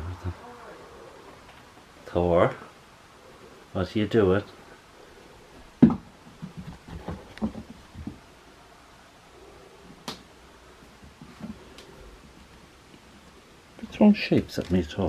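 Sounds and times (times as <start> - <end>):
soft knocks and bumps: 5.6 - 8.3.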